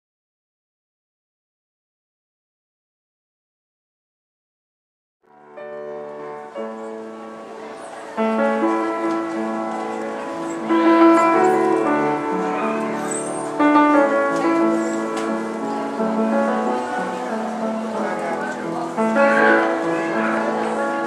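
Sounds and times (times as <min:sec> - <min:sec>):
piano playing slow chords: 0:05.3 - 0:21.0.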